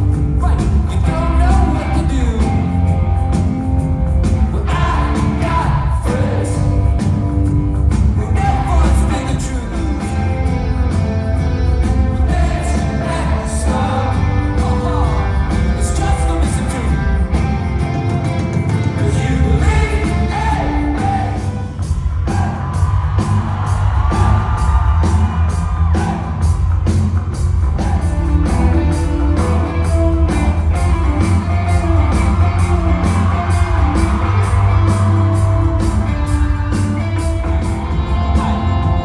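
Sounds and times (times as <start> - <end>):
live rock band playing: 0.0 - 39.0
steady drumbeat: 0.0 - 39.0
person singing: 4.4 - 7.1, 8.2 - 10.8, 12.2 - 17.6, 18.8 - 21.7
crowd whooping: 19.6 - 39.0.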